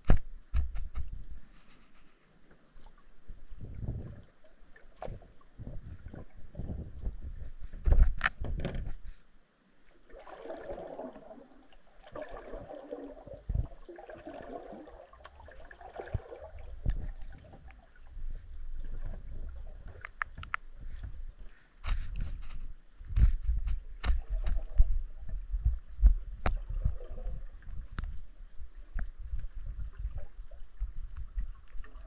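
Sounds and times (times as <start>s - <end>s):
underwater low rumbling and knocks: 3.2s - 9.2s, 12.1s - 14.0s, 15.2s - 32.0s
bubbly burbling underwater: 10.1s - 18.1s, 26.4s - 28.3s.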